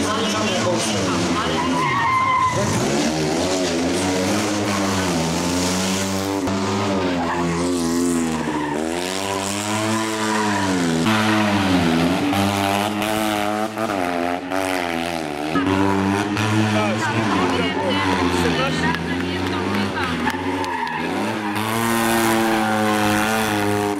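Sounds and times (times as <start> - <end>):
rally car engine revving: 0.0 - 23.9.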